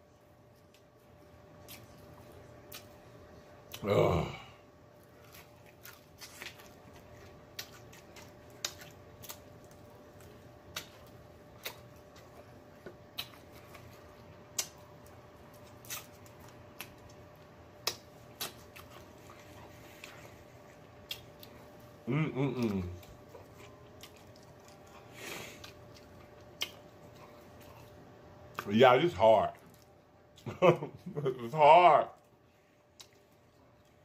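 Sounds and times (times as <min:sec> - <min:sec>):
faint steady hum: 0:00.0 - 0:34.0
chewing fried chicken: 0:00.1 - 0:04.1, 0:04.8 - 0:34.0.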